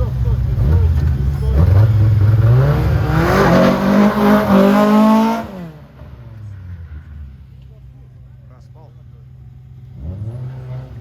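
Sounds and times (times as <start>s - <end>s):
car engine accelerating hard: 0.0s - 7.2s, 9.8s - 11.0s.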